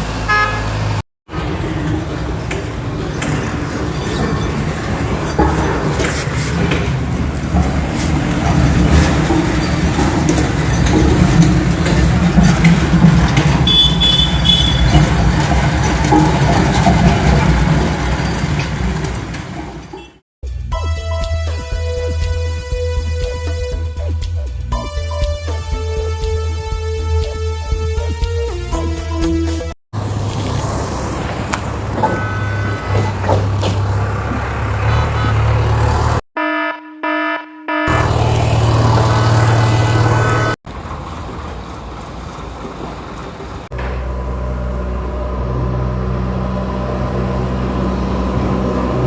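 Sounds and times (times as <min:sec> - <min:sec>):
engine rumbling: 0:00.0 - 0:20.2, 0:30.0 - 0:36.2, 0:37.9 - 0:49.0
scraping noises: 0:01.4 - 0:13.7.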